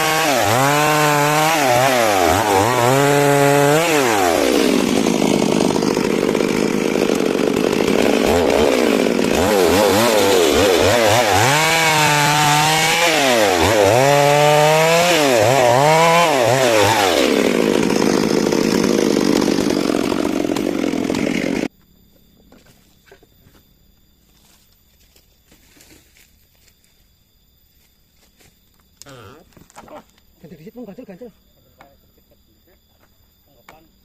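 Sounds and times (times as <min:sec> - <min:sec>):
chainsaw cutting log: 0:00.0 - 0:21.7.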